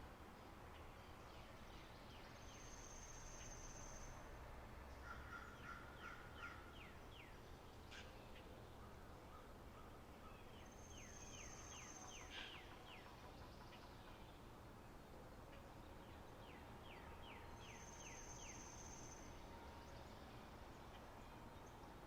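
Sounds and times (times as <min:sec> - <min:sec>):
low steady hum: 0:05.9 - 0:22.0.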